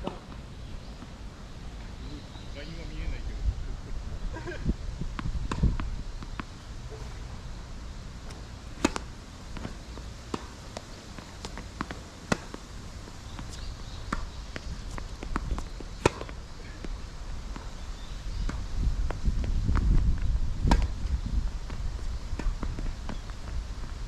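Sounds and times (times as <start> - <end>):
wind on microphone: 2.8 - 7.3, 16.6 - 24.0
tennis ball bouncing: 5.2 - 7.3, 8.2 - 23.9
tennis racket hitting ball: 8.3 - 12.6, 13.3 - 17.8.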